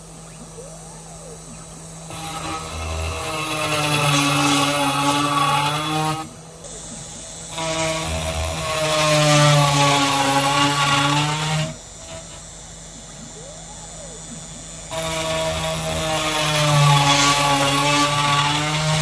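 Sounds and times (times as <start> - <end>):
faint rising and falling tones: 0.0 - 2.4
end mill cutting brick: 0.0 - 19.0
machine spindle whining: 0.0 - 19.0.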